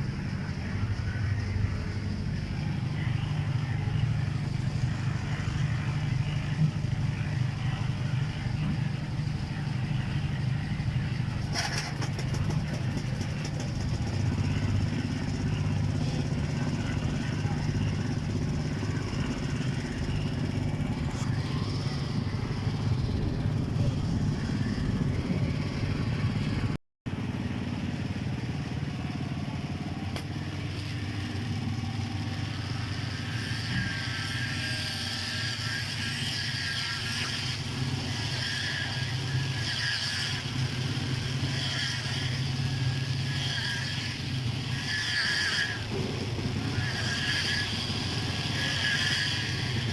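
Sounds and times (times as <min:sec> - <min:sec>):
engine running steadily: 0:00.0 - 0:49.9.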